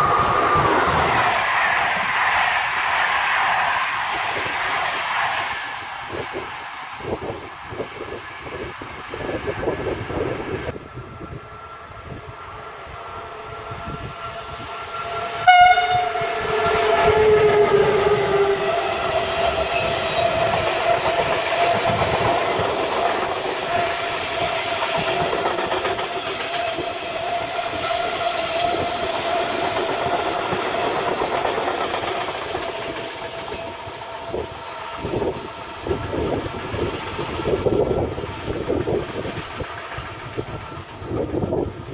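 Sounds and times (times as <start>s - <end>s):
train passing: 0.0s - 41.9s
train horn blast: 11.8s - 19.9s.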